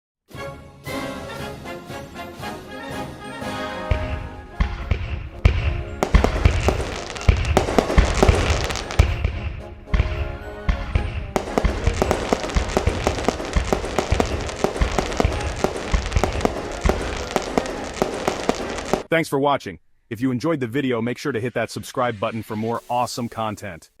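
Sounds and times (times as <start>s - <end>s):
background music: 0.3s - 19.1s
fireworks bangs and crackling: 3.9s - 9.4s, 11.3s - 19.1s.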